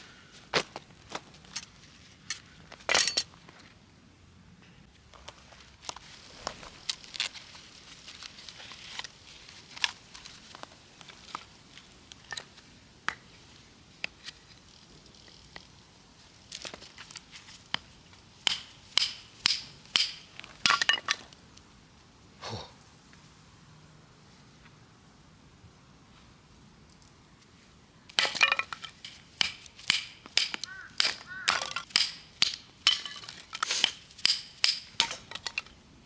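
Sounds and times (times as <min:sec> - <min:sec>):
knife splitting firewood: 0:18.4 - 0:21.2, 0:28.1 - 0:35.7
loud strikes on wood: 0:29.4 - 0:33.2.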